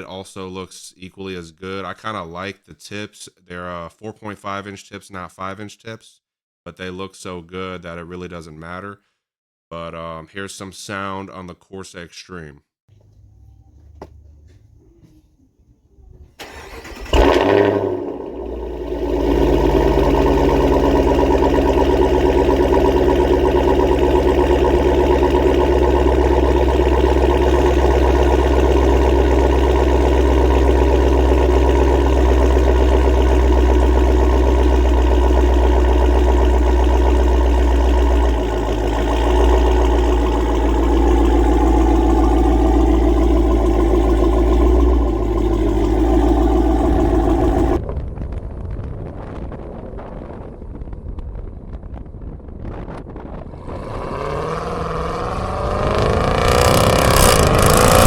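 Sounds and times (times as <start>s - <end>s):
car engine starting and idling: 12.9s - 15.2s, 16.0s - 47.8s, 53.6s - 58.0s.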